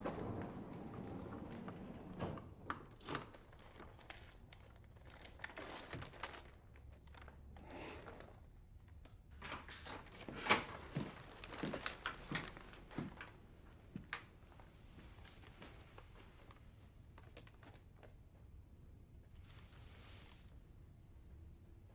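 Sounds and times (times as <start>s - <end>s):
rustling: 14.5s - 18.1s, 19.3s - 20.6s.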